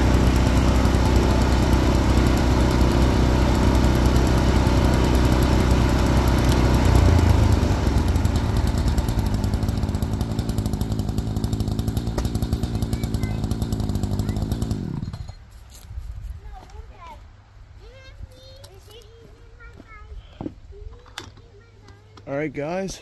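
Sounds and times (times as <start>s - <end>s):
sawmill engine running: 0.0s - 15.4s.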